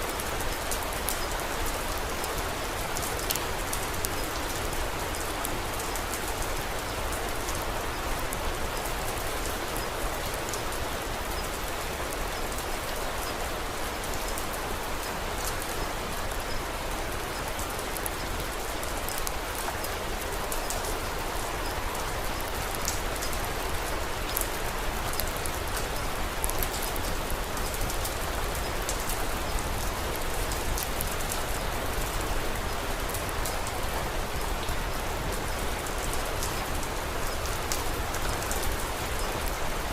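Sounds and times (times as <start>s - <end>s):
rain falling: 0.0s - 39.9s
wood fire crackling: 17.2s - 39.9s.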